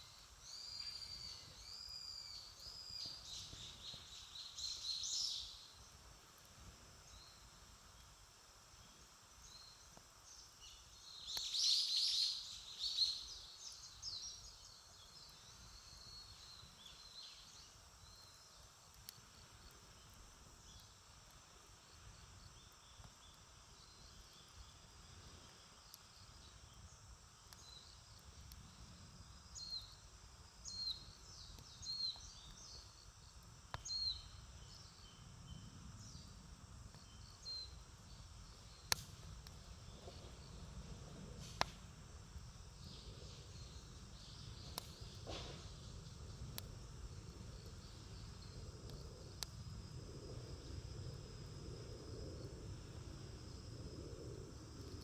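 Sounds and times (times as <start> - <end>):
small birds chirping: 0.0 - 5.9, 9.4 - 21.0, 21.9 - 40.8, 42.7 - 49.6
steady high hiss: 0.0 - 55.0.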